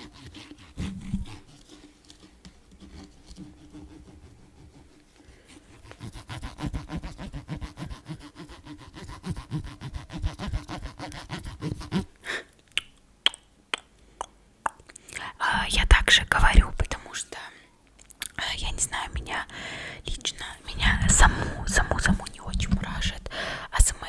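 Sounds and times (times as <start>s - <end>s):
fast scratching close to microphone: 0.0s - 12.1s, 20.1s - 24.0s.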